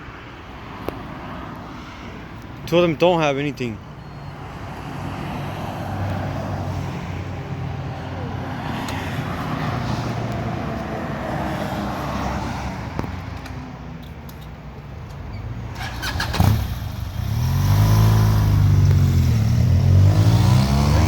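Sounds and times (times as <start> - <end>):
road traffic passing: 0.0 - 21.0
vehicle engine passing by: 15.7 - 21.0.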